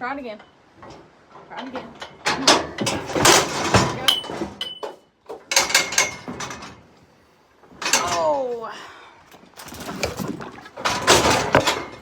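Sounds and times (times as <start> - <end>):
steel cattle chute gates clanging: 0.3 - 6.9, 7.8 - 8.4, 10.8 - 12.0.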